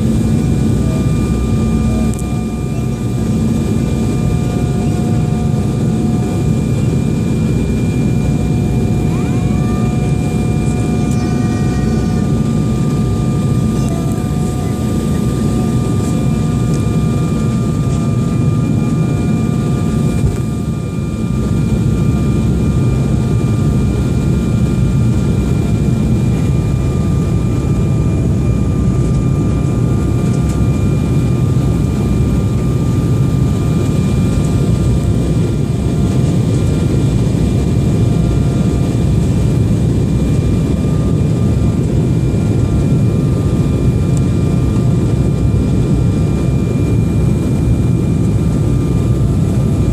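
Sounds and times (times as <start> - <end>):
faint whining tones: 0.0 - 23.4
jet engine rumble: 0.0 - 49.9.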